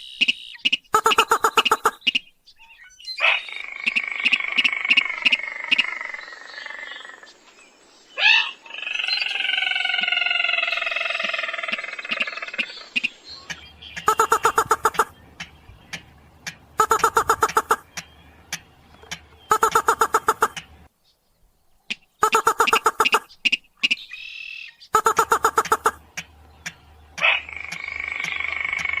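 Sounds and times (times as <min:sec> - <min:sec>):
rail ticking calls: 0:00.0 - 0:02.3, 0:09.9 - 0:20.9, 0:21.9 - 0:29.0
nasal buzzing bird calls: 0:08.3 - 0:20.8, 0:22.2 - 0:29.0
sharp bird call: 0:13.9 - 0:16.0, 0:16.8 - 0:18.2, 0:19.0 - 0:20.8.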